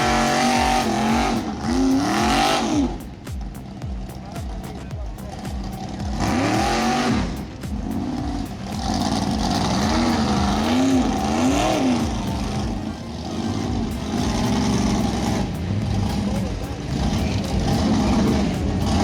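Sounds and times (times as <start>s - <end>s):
vehicle engine revving: 0.0s - 19.0s.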